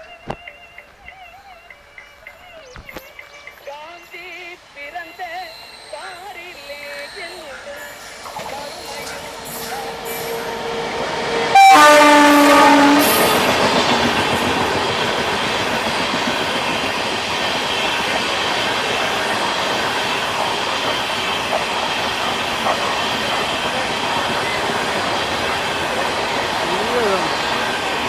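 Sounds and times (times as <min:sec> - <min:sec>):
train passing: 0:00.0 - 0:28.0
locomotive horn blast: 0:08.3 - 0:14.0.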